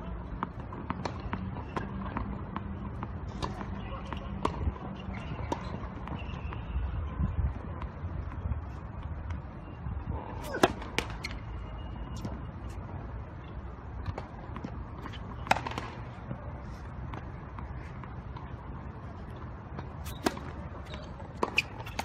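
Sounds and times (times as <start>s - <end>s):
ball taps and shoe squeaks: 0.3s - 22.0s
racket hitting tennis ball: 10.4s - 11.4s, 14.0s - 16.2s, 19.7s - 22.0s.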